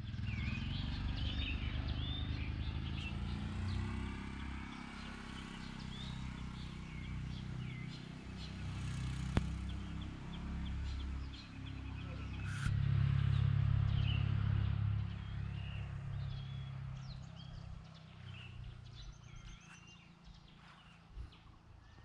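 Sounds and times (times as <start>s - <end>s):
birds chirping: 0.0s - 22.0s
low rumble: 10.9s - 19.6s.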